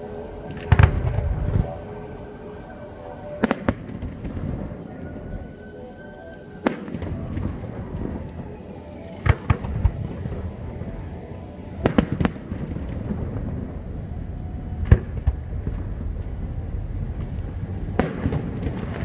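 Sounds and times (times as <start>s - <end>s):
fireworks bursting with bangs: 18.0s - 19.0s.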